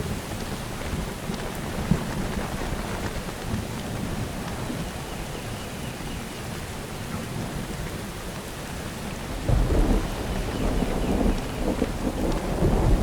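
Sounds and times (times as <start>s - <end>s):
rain falling: 0.0s - 13.0s
thunder rumble: 9.3s - 13.0s.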